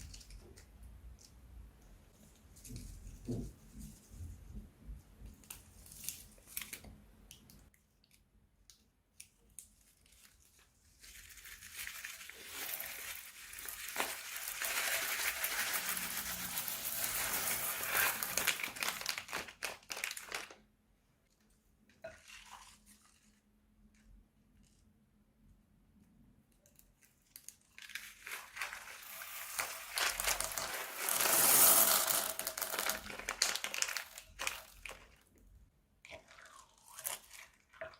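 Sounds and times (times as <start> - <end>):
plastic piping bag crinkling: 9.3 - 20.7, 26.9 - 35.5.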